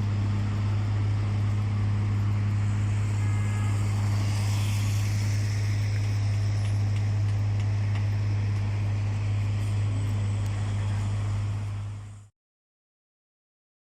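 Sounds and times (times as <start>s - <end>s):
vehicle drone with road noise: 0.0s - 12.3s.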